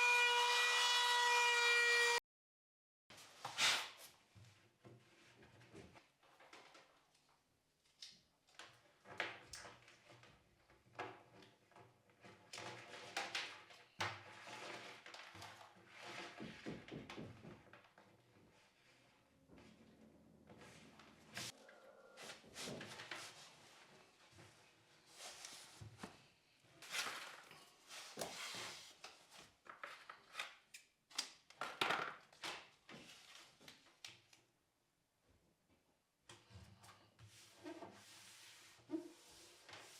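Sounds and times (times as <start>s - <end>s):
rustling scrapes: 14.2s - 16.6s, 26.8s - 29.4s, 37.3s - 39.9s.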